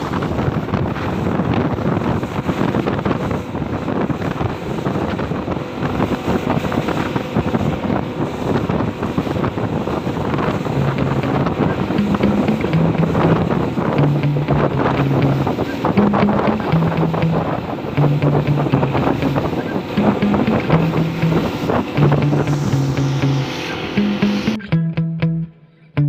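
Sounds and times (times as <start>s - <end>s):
wind buffeting microphone: 0.0s - 24.6s
outboard motor running: 0.0s - 24.7s
music with stepping bass line: 10.6s - 25.6s.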